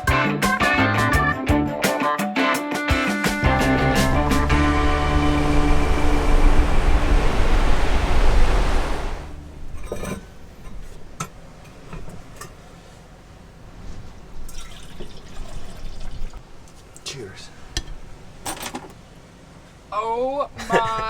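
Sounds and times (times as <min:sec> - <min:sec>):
coffee being poured: 0:14.5 - 0:16.4.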